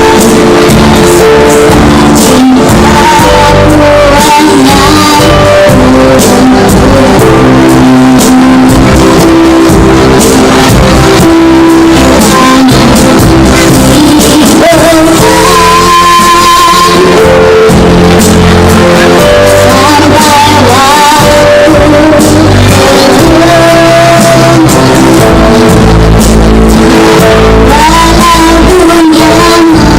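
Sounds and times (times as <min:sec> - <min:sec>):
backing music with guitar: 0:00.0 - 0:29.9
child singing: 0:02.2 - 0:08.8, 0:13.8 - 0:17.4, 0:19.5 - 0:24.8, 0:27.7 - 0:29.9.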